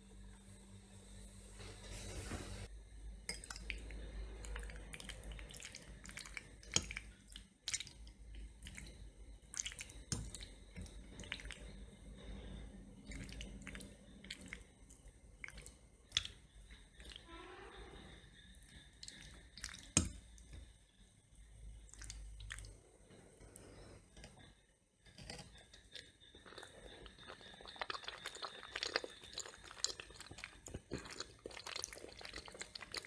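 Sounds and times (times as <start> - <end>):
person chewing food: 13.0 - 17.2, 25.1 - 33.0.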